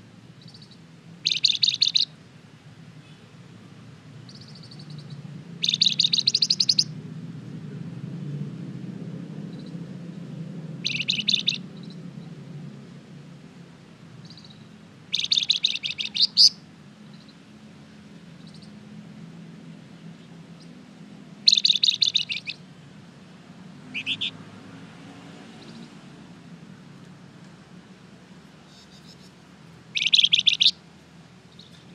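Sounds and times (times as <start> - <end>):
songbird rapid sharp chirping: 0.4 - 2.1, 4.3 - 6.9, 9.5 - 9.8, 10.8 - 12.4, 14.2 - 17.4, 18.4 - 18.8, 20.6 - 20.8, 21.4 - 22.6, 23.7 - 24.4, 25.5 - 26.0, 28.6 - 30.8, 31.5 - 31.9.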